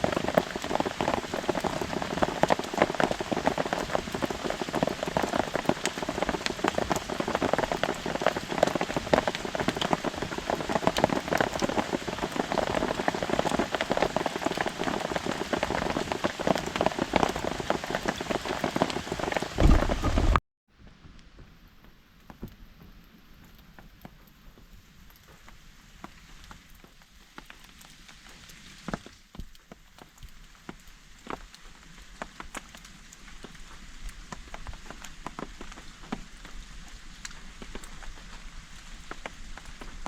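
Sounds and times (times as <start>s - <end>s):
rain pattering on a tarp: 0.0s - 40.0s
low rumble: 19.6s - 20.4s.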